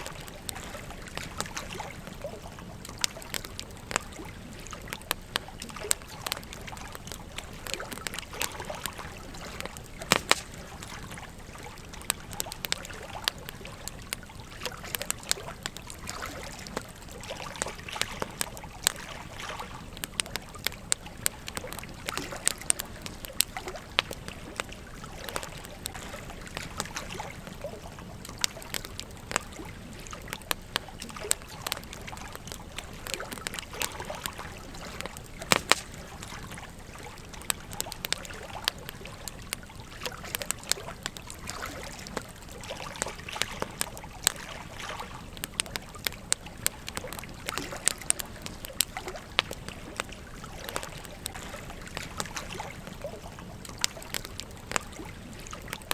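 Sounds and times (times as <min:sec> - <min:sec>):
campfire crackling and popping: 0:00.0 - 0:55.9
stream trickling: 0:00.0 - 0:55.9.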